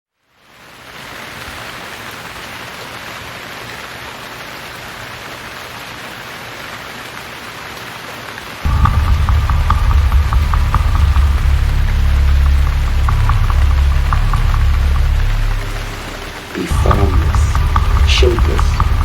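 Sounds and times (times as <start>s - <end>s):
heavy rain hissing: 0.6s - 19.0s
loud low rumble: 8.7s - 19.0s.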